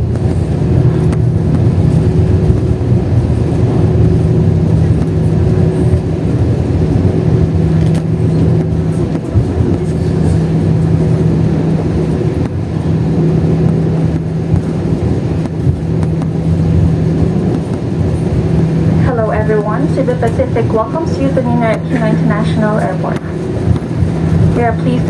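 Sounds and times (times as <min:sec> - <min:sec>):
aircraft engines rumbling: 0:00.0 - 0:25.0
low steady hum: 0:00.0 - 0:25.0.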